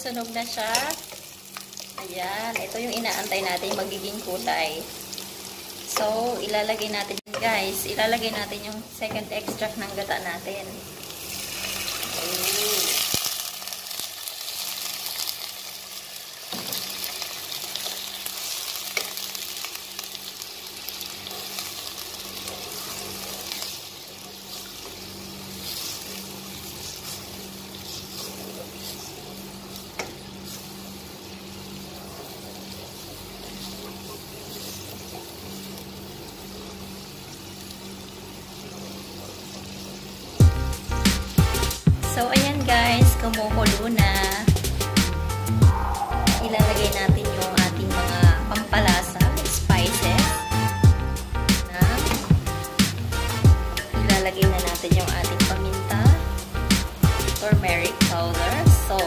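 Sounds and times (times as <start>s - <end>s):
liquid sizzling in hot pan: 0.0s - 59.0s.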